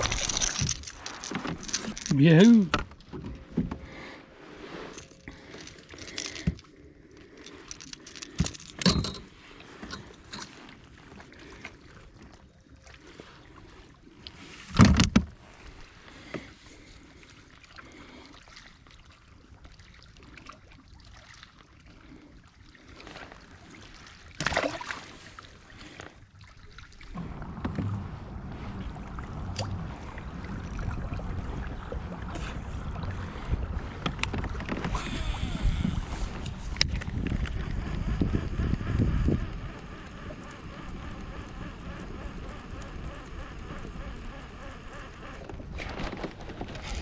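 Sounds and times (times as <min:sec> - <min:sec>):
gear knocking and rattling: 0:00.0 - 0:02.9, 0:04.9 - 0:06.7, 0:07.4 - 0:10.6, 0:36.0 - 0:47.0.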